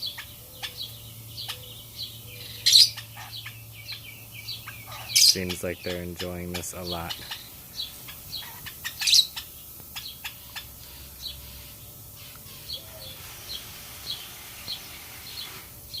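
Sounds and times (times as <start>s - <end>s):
lovebirds chirping: 0.0s - 16.0s
sharp bird calls and clicks: 0.0s - 16.0s.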